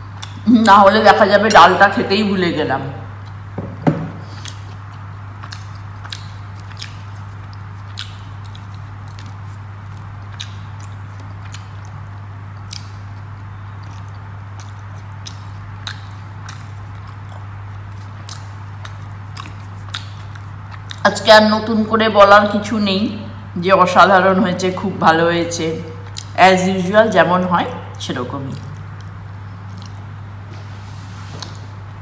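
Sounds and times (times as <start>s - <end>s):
steady low hum: 0.0s - 32.0s
wet mouth clicks and smacks: 0.1s - 0.4s, 4.3s - 21.1s, 26.0s - 26.4s, 28.5s - 30.2s
person chewing food: 4.2s - 21.0s, 26.0s - 26.4s, 28.5s - 30.8s.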